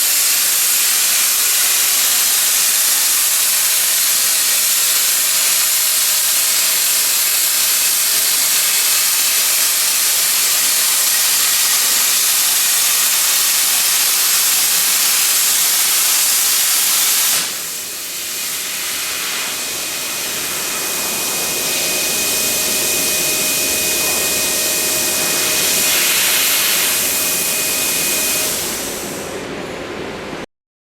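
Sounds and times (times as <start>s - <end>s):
cutting torch hissing: 0.0s - 29.3s
high whine: 17.6s - 30.4s.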